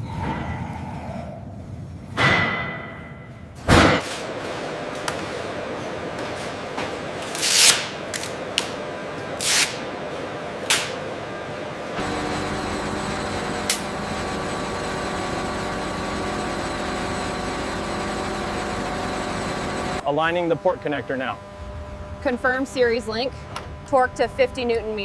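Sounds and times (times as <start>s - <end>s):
steady machine hum: 7.9s - 24.7s.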